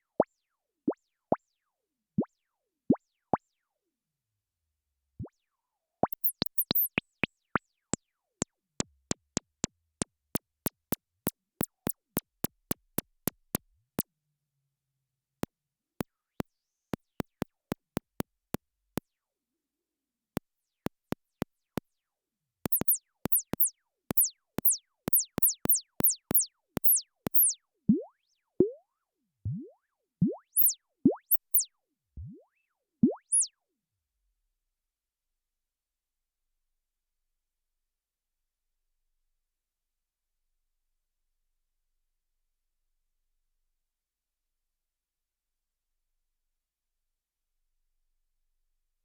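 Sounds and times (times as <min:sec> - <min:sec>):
synth chirps falling in pitch: 0:06.0 - 0:07.0, 0:29.5 - 0:33.5.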